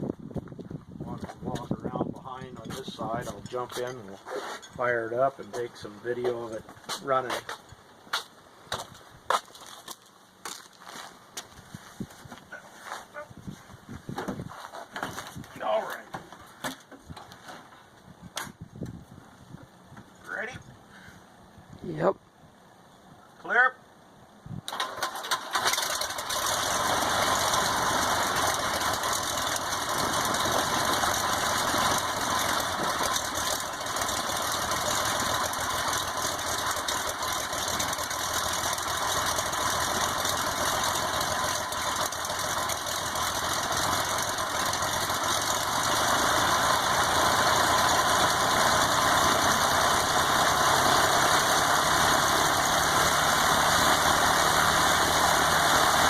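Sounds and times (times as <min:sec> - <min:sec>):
aircraft engine running: 0:24.7 - 0:56.0.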